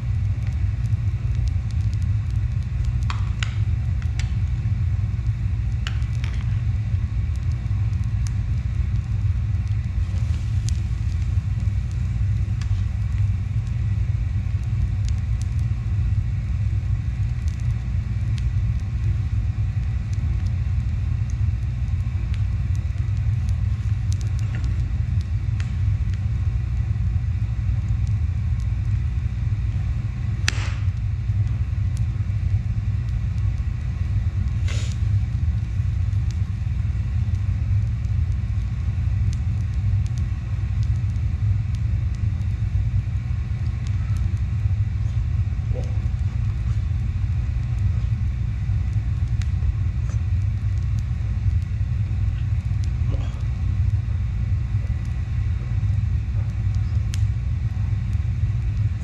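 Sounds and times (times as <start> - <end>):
steady low rumble: 0.0 - 59.0
faint clicks: 56.7 - 57.3.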